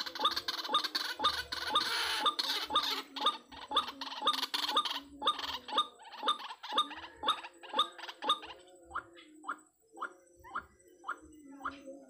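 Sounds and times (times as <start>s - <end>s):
waterhen harsh calls: 0.0s - 5.7s.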